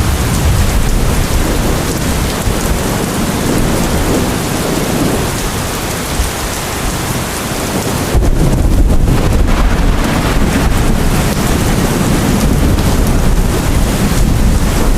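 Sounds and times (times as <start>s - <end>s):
deep low rumble: 0.0s - 2.6s
steady rain: 0.0s - 14.9s.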